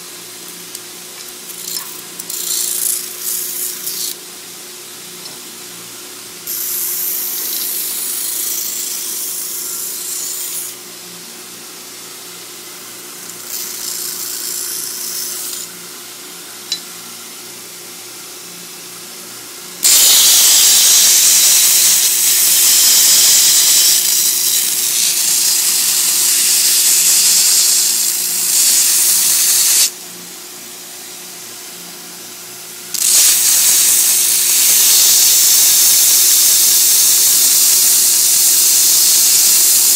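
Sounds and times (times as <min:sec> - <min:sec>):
grinding hiss: 0:06.5 - 0:10.8, 0:19.8 - 0:29.9, 0:32.9 - 0:39.9
belt grinder motor hum: 0:19.8 - 0:29.9, 0:32.9 - 0:39.9.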